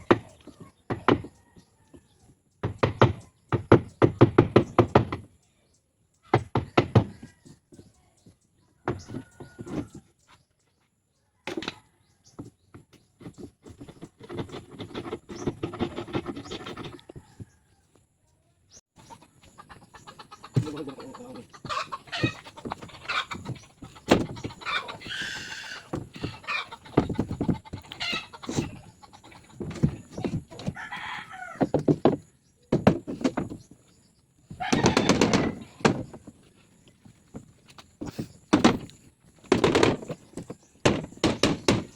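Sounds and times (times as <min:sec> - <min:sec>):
chickens clucking: 0:06.2 - 0:10.9, 0:11.5 - 0:18.0, 0:19.0 - 0:41.9
rooster crowing: 0:24.6 - 0:26.8, 0:30.6 - 0:31.8, 0:34.6 - 0:35.8.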